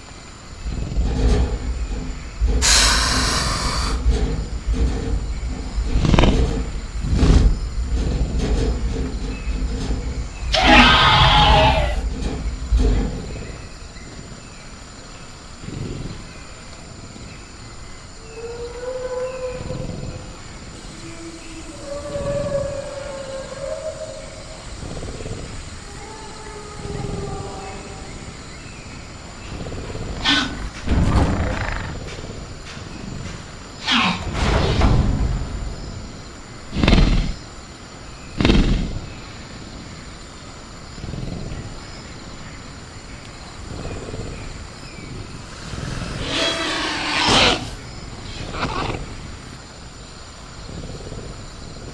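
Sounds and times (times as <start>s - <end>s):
high insect drone: 0.0s - 51.9s
rasping raptor growl: 0.0s - 51.9s
heavy bangs: 0.4s - 14.8s, 30.1s - 37.5s
low rumble: 0.4s - 14.8s
moaning siren-like creature calls: 10.5s - 12.0s, 20.9s - 24.6s.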